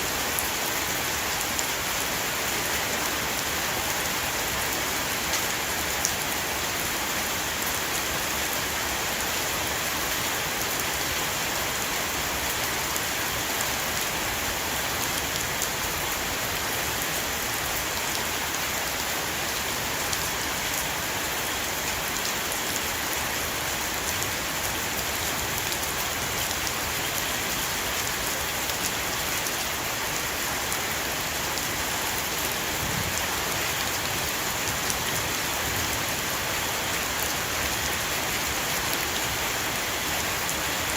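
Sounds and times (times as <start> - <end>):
heavy rain on a roof: 0.0 - 40.9.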